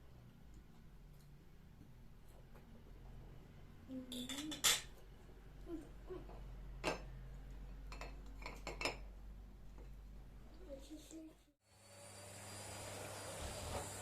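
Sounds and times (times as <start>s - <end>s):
kitchenware clinking and knocking: 4.1s - 5.0s, 6.2s - 7.2s, 7.8s - 9.1s.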